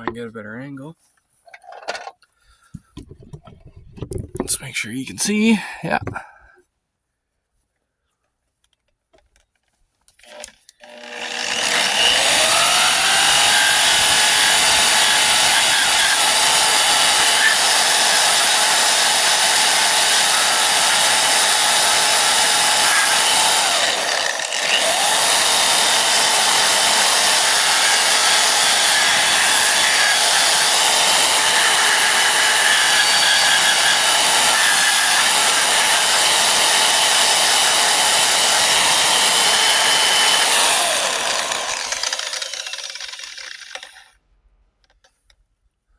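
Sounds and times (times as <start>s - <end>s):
electric paint-stripping wheel spinning: 10.3s - 44.1s.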